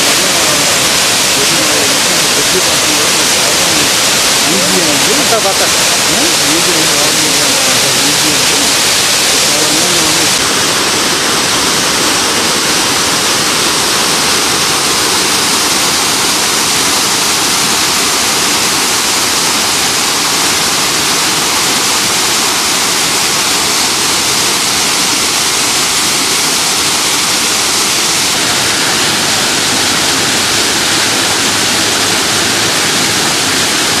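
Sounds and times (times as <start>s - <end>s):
waterfall rushing and splashing: 0.0s - 34.0s.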